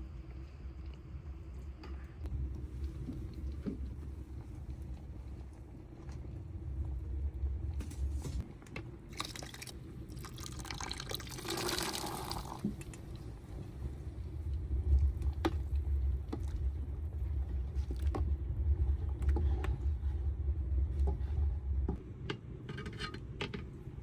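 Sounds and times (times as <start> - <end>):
steady low rumble: 0.0 - 9.1, 12.7 - 22.3
water pouring into container: 9.1 - 13.1.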